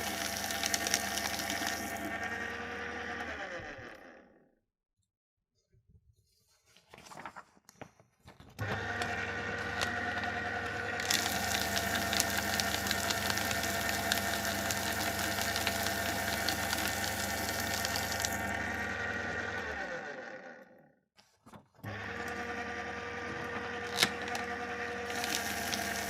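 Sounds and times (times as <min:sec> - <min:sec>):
paper being shredded crackling: 0:00.0 - 0:02.1, 0:08.6 - 0:18.6, 0:23.7 - 0:26.0
shredder motor hum: 0:00.0 - 0:04.5, 0:08.6 - 0:21.0, 0:21.8 - 0:26.0
faint paper rustles: 0:06.2 - 0:08.6, 0:21.2 - 0:21.8.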